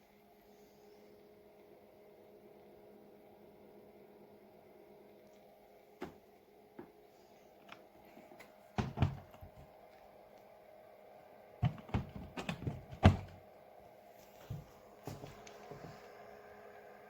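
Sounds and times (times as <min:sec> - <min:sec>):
faint steady hum: 0:00.0 - 0:17.0
knocks and thuds on mini fridge: 0:06.0 - 0:06.2, 0:08.8 - 0:09.7, 0:11.6 - 0:13.4.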